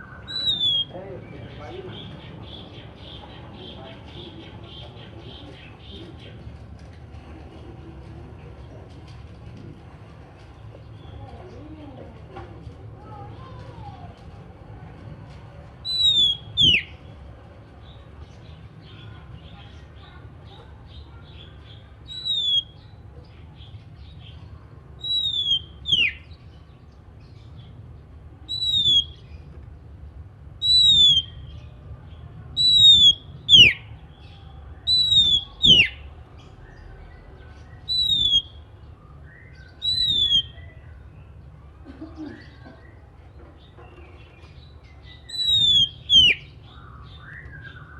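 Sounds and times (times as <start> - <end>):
bird whistling down-slurred call: 0.0 - 1.0, 15.8 - 16.9, 22.1 - 22.8, 25.0 - 26.3, 28.5 - 29.2, 30.6 - 31.5, 32.6 - 33.9, 34.8 - 36.0, 37.8 - 38.6, 39.2 - 40.8, 45.2 - 47.9.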